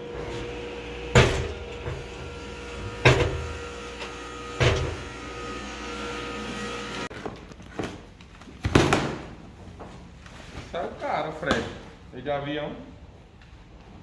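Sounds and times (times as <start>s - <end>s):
mechanical hum with held tone: 0.0s - 10.3s.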